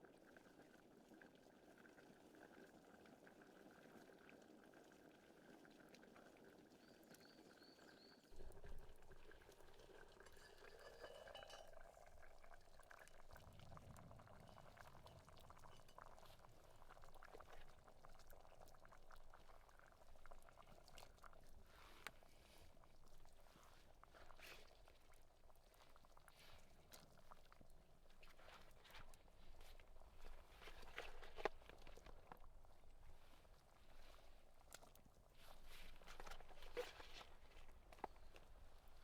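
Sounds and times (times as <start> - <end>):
pot bubbling: 0.1 - 39.0
liquid pouring into vessel: 8.4 - 16.7.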